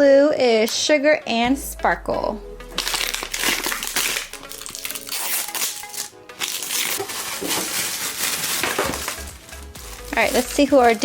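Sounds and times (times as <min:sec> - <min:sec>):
background music: 0:00.0 - 0:11.0
plastic packaging crinkling and tearing: 0:02.7 - 0:11.0.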